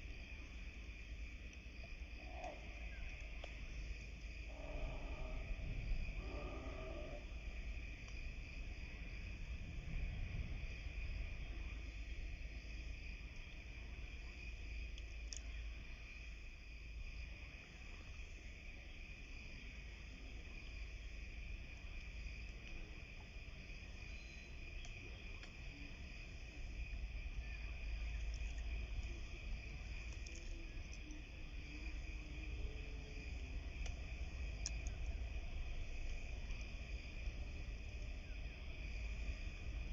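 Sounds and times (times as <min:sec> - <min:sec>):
low rumble: 0:01.8 - 0:14.8.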